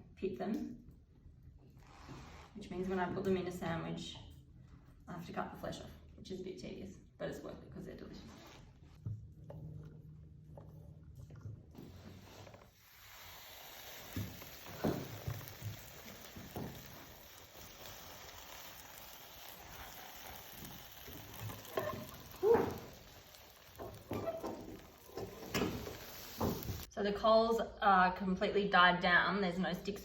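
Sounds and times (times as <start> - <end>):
faint hiss: 12.7 - 21.7.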